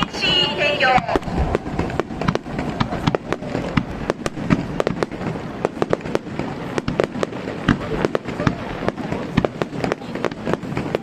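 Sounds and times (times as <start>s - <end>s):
low rumble: 0.0s - 6.8s
fireworks bangs and cracks: 0.0s - 11.0s.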